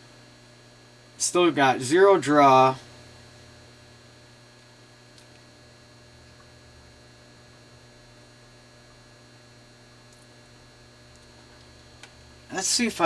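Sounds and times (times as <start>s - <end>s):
electrical mains hum: 0.0s - 13.0s
thin high whine: 12.5s - 13.0s.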